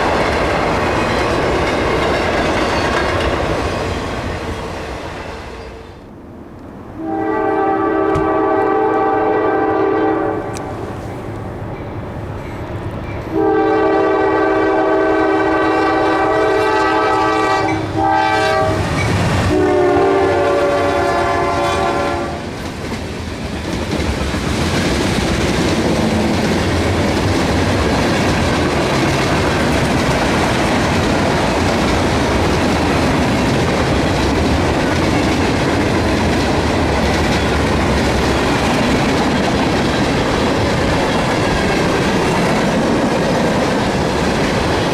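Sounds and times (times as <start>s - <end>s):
clickety-clack of train cars: 0.0s - 44.9s
train wheel and rail noise: 0.0s - 44.9s
locomotive air horn: 7.0s - 10.7s, 13.3s - 18.8s, 19.5s - 22.4s.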